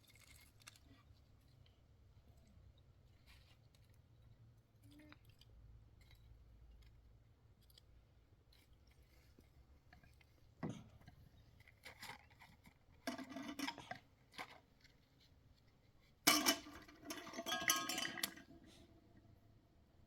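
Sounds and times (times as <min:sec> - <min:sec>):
dishes clattering: 0:13.1 - 0:14.0, 0:16.3 - 0:18.9
objects knocking: 0:16.3 - 0:18.8.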